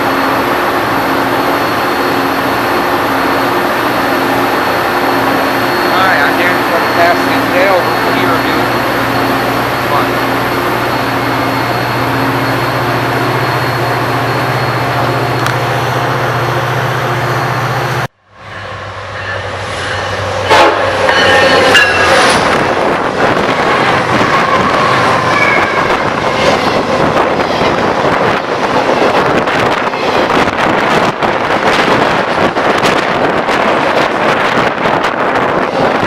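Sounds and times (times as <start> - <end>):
locomotive engine drone: 0.0 - 36.0
train rumble: 0.0 - 36.0
rail clatter: 18.5 - 36.0.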